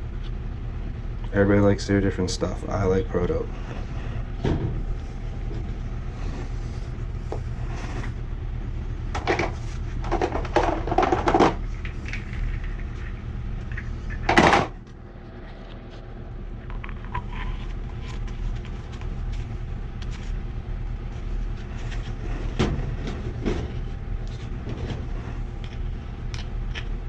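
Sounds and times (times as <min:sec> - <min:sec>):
steady low hum: 0:00.0 - 0:27.0
pipe fittings knocking and scraping: 0:09.1 - 0:14.7.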